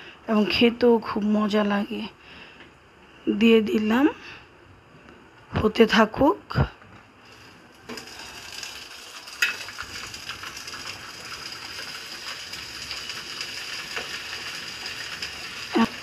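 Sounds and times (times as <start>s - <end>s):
curry sizzling in a pan: 7.2s - 16.0s.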